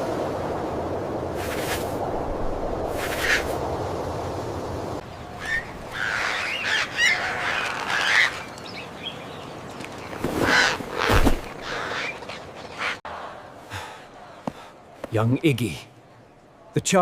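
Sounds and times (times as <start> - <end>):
birds chirping and squawking: 5.4 - 9.6, 10.3 - 13.0.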